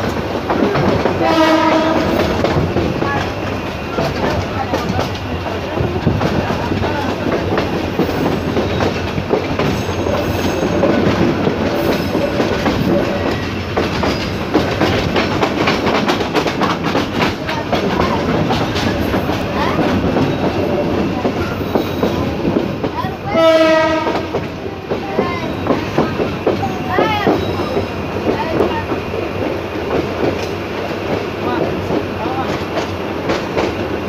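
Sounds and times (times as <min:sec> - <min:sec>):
train wheels clickety-clack: 0:00.0 - 0:34.0
locomotive horn: 0:01.2 - 0:02.4, 0:23.3 - 0:24.4.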